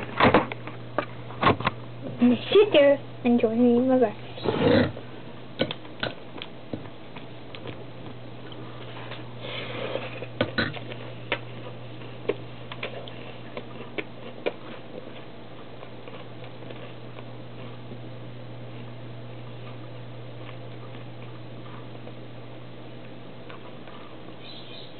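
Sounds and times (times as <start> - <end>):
steady low hum: 0.0 - 24.9
clicks and taps of eating: 5.6 - 8.6.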